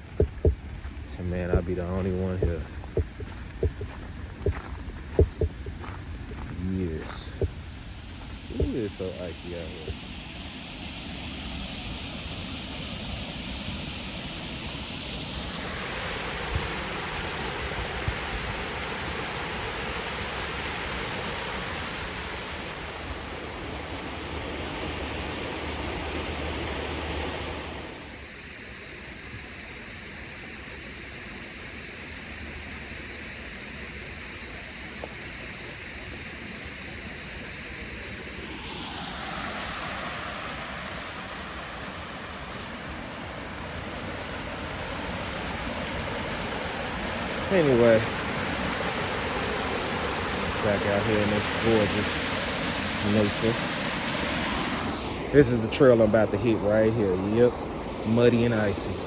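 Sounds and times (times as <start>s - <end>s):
rushing flowing water: 0.0s - 10.2s, 13.0s - 28.0s, 38.3s - 59.0s
wind rumbling on microphone: 0.0s - 10.2s.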